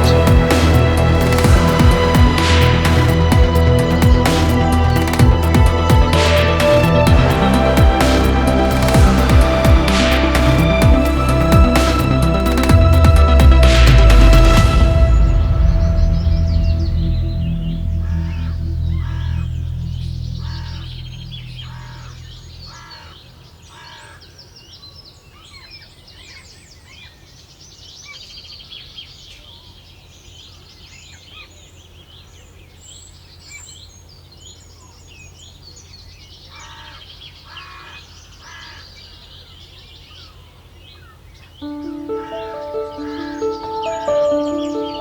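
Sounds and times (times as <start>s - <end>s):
background music: 0.0s - 23.0s, 41.6s - 45.0s
steady low hum: 0.0s - 23.0s.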